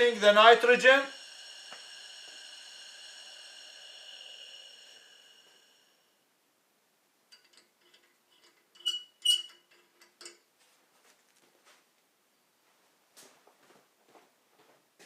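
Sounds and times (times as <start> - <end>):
thin gas whistle: 0.0 - 6.3.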